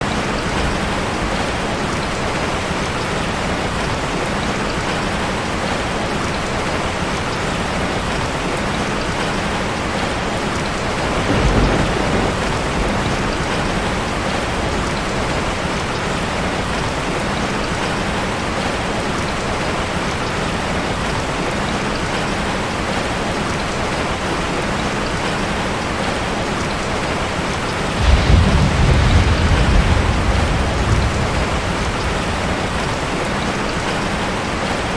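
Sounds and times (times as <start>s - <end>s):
rain on a metal roof: 0.0s - 34.9s
low rumble: 28.0s - 33.3s.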